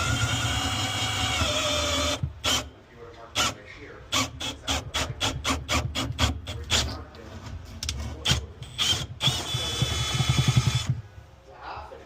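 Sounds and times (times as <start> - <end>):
small power tool whirring: 0.0 - 2.7, 8.6 - 11.0.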